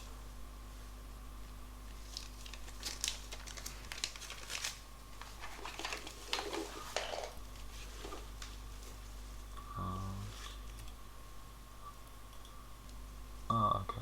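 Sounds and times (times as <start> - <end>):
packaging rustling and crinkling: 1.9 - 9.0.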